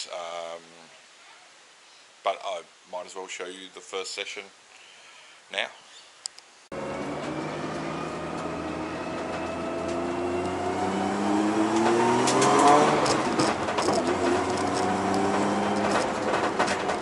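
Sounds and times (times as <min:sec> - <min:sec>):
car engine accelerating: 0:06.7 - 0:17.0
car clicks and rattles: 0:11.7 - 0:17.0.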